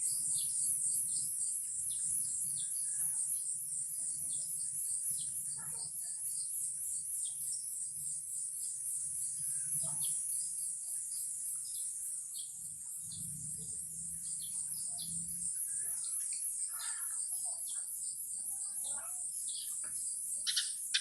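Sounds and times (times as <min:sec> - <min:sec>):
birds chirping: 0:11.1 - 0:21.0.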